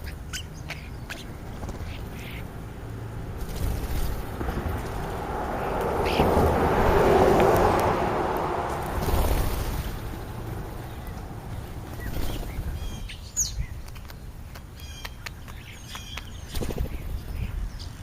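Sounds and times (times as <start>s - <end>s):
starlings chirping and whistling: 0.0s - 2.5s, 5.6s - 6.4s, 11.9s - 18.0s
rushing noise: 2.9s - 11.4s.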